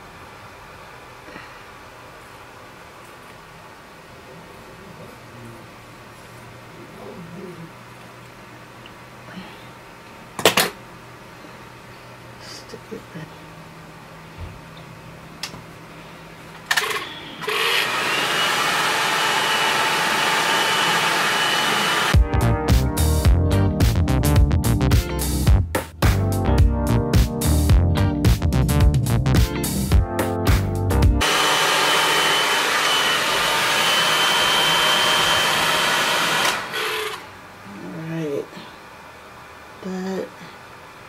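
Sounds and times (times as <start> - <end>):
hair dryer blowing: 16.8 - 22.2, 31.2 - 37.3.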